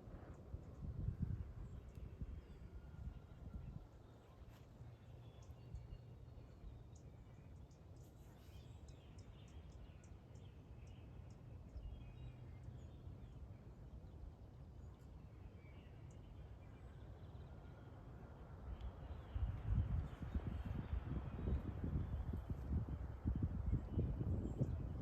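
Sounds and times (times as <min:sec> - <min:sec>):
wind buffeting microphone: 0:00.0 - 0:04.0, 0:19.1 - 0:25.0.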